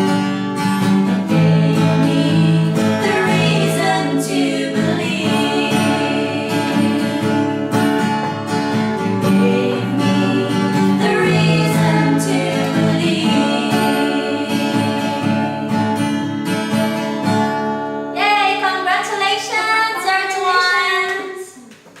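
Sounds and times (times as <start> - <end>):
acoustic guitar: 0.0 - 22.0
people singing: 1.1 - 8.5, 9.2 - 16.2, 18.2 - 20.3.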